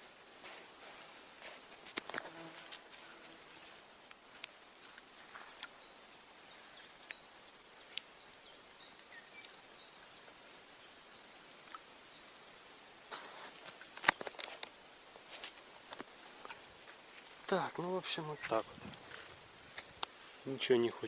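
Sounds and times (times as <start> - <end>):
faint outdoor ambience: 0.0 - 21.0.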